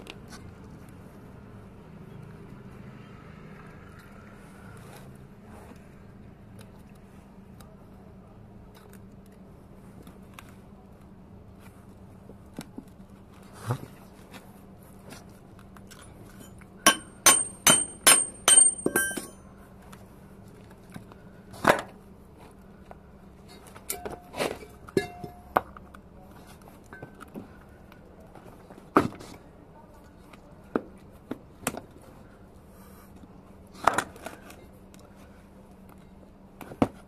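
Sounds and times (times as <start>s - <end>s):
metal tools knocking and clinking: 16.3s - 19.4s, 23.9s - 25.6s.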